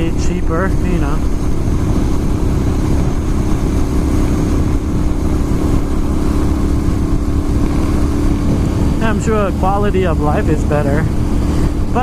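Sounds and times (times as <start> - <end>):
motorcycle engine running steadily: 0.0 - 12.0.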